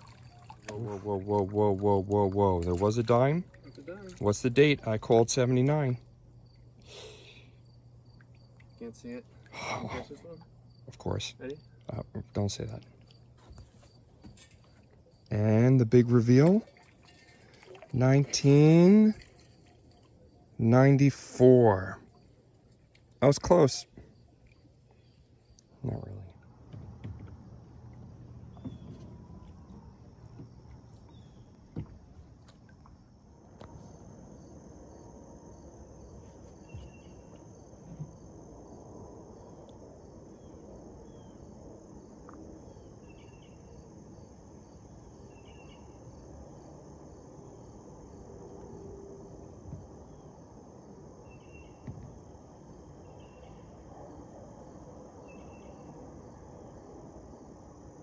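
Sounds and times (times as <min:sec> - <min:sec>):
insect chirps: 0:00.0 - 0:58.0
insects high-pitched drone: 0:00.0 - 0:58.0.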